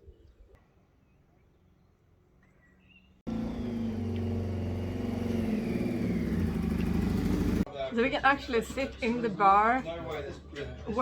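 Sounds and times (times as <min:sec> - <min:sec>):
engine running steadily: 0:03.3 - 0:07.7.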